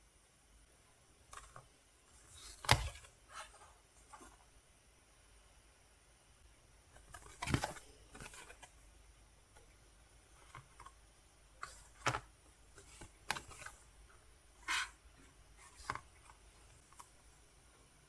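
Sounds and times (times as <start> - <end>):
paper and plastic rustling: 11.6 - 14.0.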